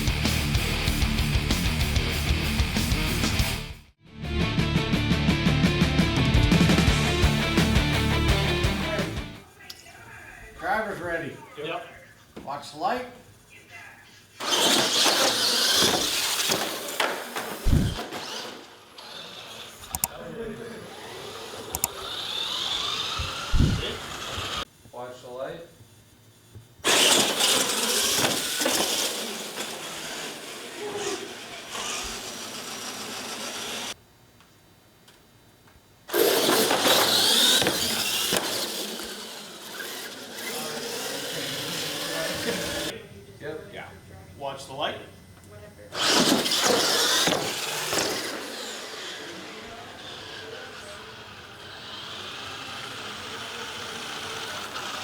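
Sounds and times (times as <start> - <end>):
rc truck motors whining: 14.4 - 24.7, 26.8 - 34.0, 36.1 - 43.0, 45.9 - 55.0
short low thump: 17.7 - 18.0.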